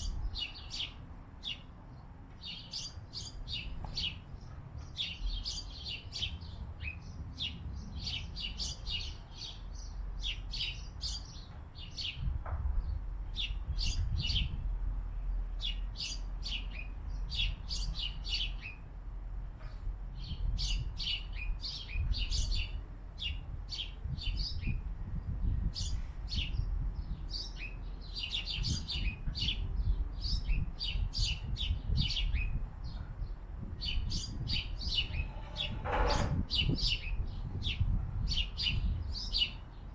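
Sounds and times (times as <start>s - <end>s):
small birds chirping: 0.0s - 19.0s, 19.6s - 39.9s.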